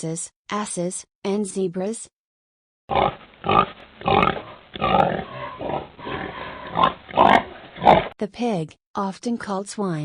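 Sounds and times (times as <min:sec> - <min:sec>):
pig grunting and snorting: 0:02.9 - 0:08.2.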